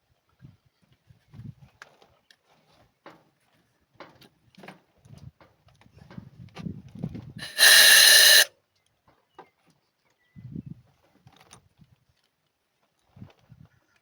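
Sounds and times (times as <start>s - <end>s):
loud hiss: 7.4s - 8.5s.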